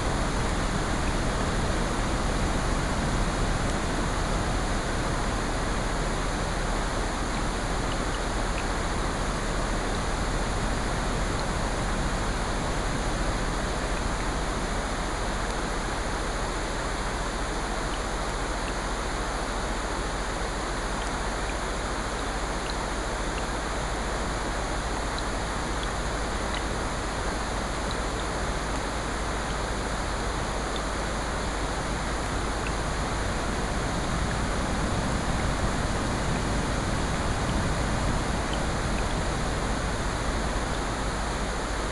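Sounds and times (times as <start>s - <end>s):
ocean surf: 0.0s - 17.2s, 28.4s - 41.9s
rain: 0.0s - 41.9s.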